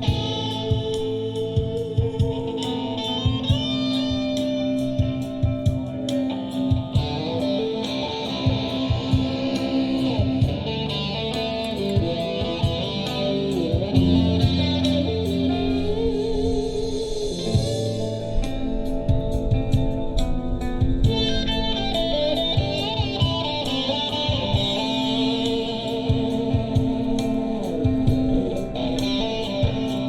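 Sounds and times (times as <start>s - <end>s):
electric guitar solo: 0.0s - 30.0s
live rock band playing: 0.0s - 30.0s.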